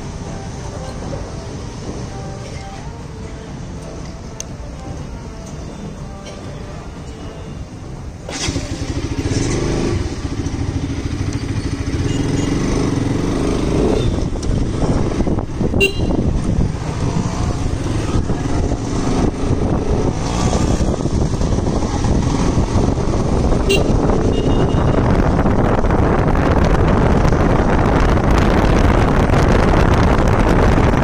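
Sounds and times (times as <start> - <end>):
motorcycle engine running: 8.3 - 31.0.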